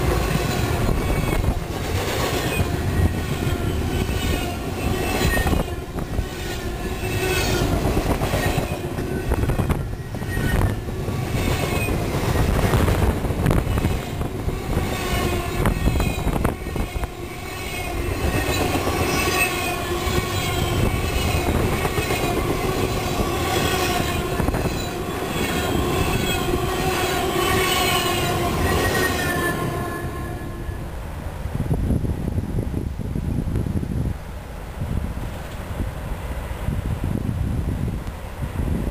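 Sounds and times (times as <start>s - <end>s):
train wheels rumbling on rails: 0.0s - 38.9s
wheel squeals and clicks: 2.3s - 12.8s, 14.8s - 29.9s.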